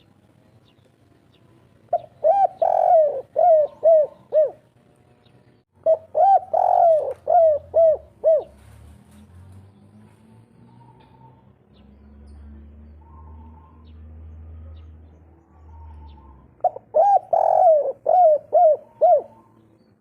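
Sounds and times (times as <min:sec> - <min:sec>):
dove cooing: 0:01.9 - 0:04.7, 0:05.8 - 0:08.8, 0:13.0 - 0:19.7.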